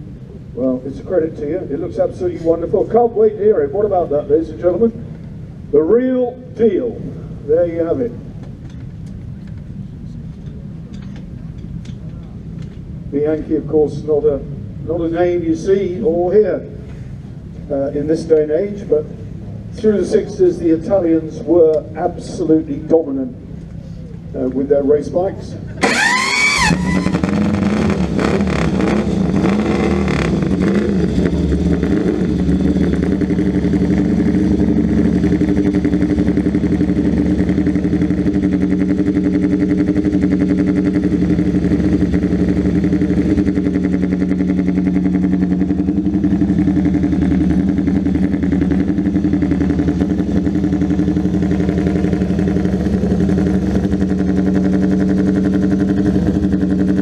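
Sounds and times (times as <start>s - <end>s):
motorcycle engine running: 14.5s - 57.0s.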